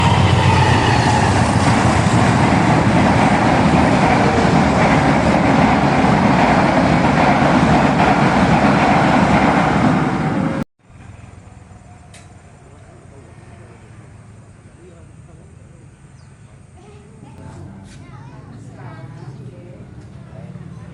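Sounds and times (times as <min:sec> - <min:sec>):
train wheels rumbling on rails: 0:00.0 - 0:14.6.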